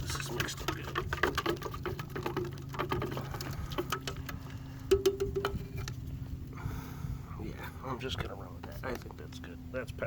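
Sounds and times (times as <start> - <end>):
stick stirring in a cup: 0.0 - 5.8
steady low hum: 0.0 - 10.0.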